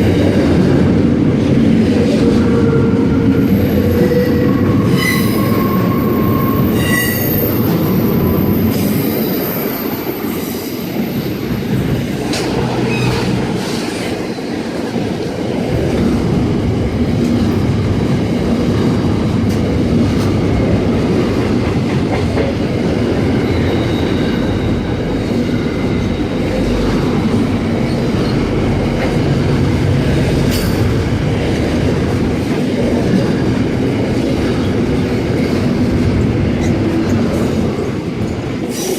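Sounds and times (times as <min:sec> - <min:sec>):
freight train wagons rumbling: 0:00.0 - 0:38.9
high wheel squeal: 0:03.4 - 0:11.9.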